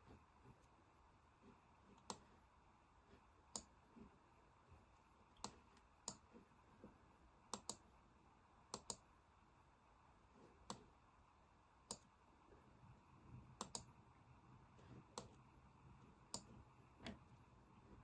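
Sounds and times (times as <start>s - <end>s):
faint computer clicks: 13.6s - 13.9s.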